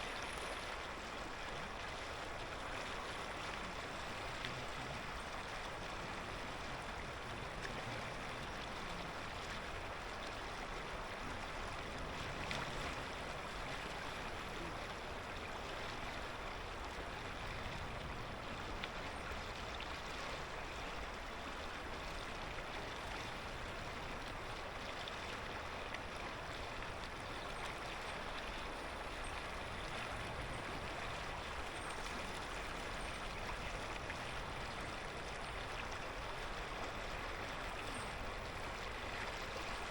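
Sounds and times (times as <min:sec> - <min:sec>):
river flowing over stones: 0:00.0 - 0:39.9.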